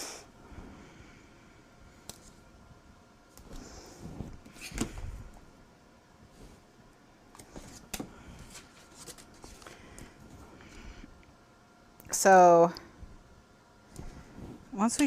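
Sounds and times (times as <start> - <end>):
paper rustling: 7.4 - 9.8.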